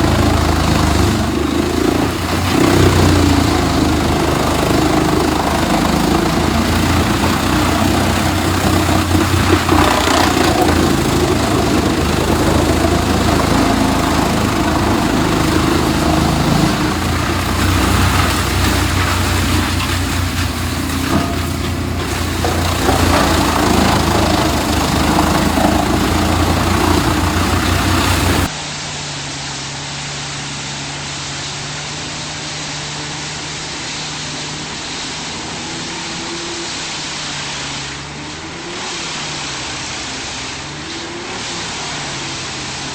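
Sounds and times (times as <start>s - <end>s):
material going through chipper: 0.0s - 28.5s
wood chipper engine drone: 0.0s - 42.9s.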